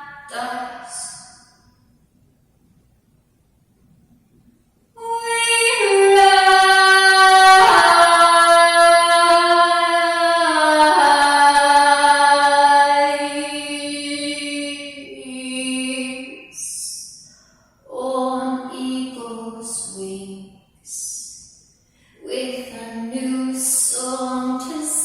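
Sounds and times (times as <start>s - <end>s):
woman singing long note: 0.0s - 1.5s, 5.0s - 16.8s.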